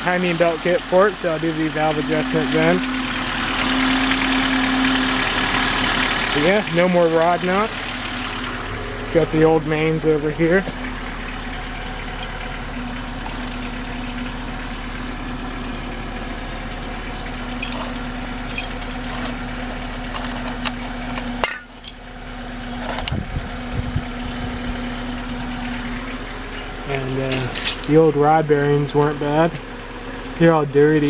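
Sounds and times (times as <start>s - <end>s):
car engine idling: 0.0s - 31.0s
light metallic clinks: 11.8s - 12.6s, 17.0s - 19.4s.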